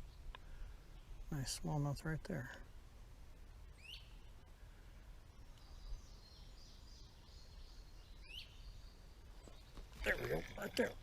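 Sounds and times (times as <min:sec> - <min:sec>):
songbird chirps: 0:00.0 - 0:11.0.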